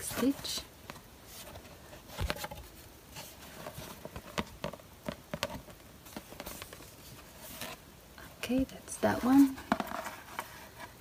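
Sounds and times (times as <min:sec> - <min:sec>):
cardboard covers rustling and clicking: 0:00.0 - 0:07.8.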